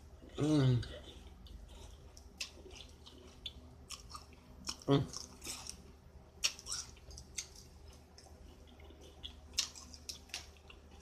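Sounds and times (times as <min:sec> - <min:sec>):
person chewing snacks: 0:00.2 - 0:11.0.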